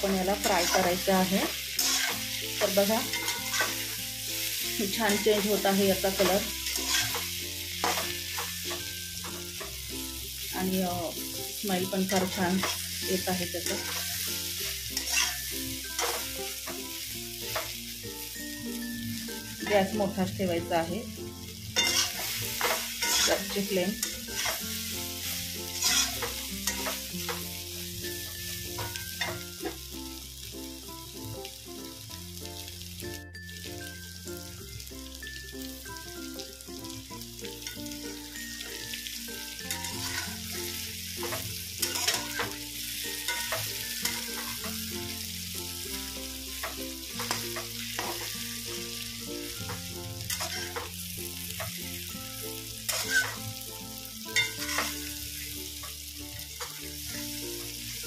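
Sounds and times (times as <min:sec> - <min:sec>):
food sizzling in oil: 0:00.0 - 0:58.0
spatula scraping a pan: 0:00.3 - 0:09.8, 0:12.1 - 0:16.4, 0:21.8 - 0:27.5, 0:39.6 - 0:42.6, 0:43.2 - 0:44.8, 0:49.8 - 0:51.0, 0:52.9 - 0:53.5, 0:54.4 - 0:55.4.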